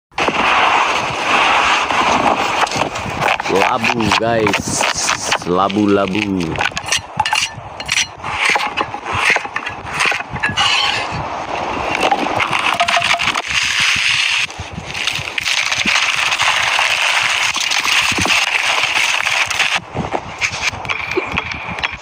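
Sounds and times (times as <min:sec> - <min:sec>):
scattered clicks and knocks: 0:12.0 - 0:13.5.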